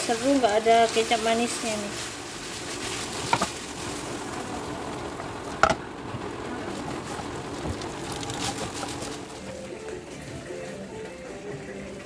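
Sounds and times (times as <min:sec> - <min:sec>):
food sizzling in a wok: 0:00.0 - 0:09.4.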